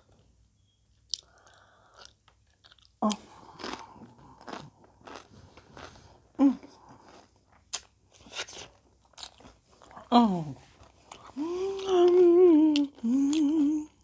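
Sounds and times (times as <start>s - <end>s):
chewing crunchy chips: 1.1s - 10.1s, 10.8s - 14.0s
person humming: 6.4s - 6.9s, 11.3s - 14.0s
person voicing mm: 11.3s - 14.0s.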